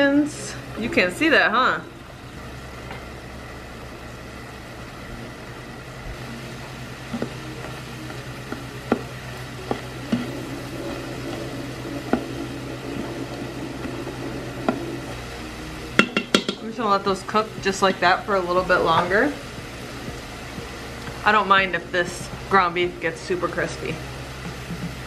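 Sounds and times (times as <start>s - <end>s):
beef and onion sizzling: 0.0s - 25.0s
steady low hum: 0.0s - 25.0s
spoon knocking against pot: 16.0s - 16.6s.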